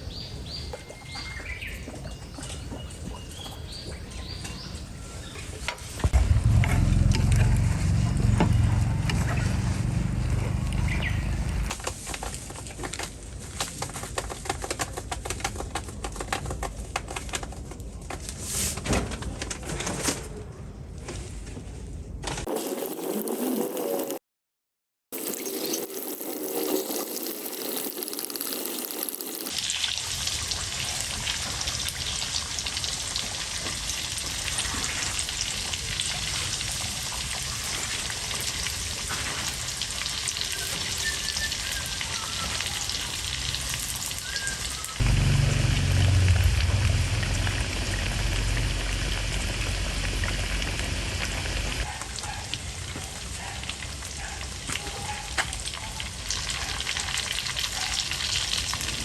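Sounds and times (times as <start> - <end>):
low rumble: 6.0 - 11.7, 45.0 - 51.8
food sizzling in a pan: 25.2 - 51.6.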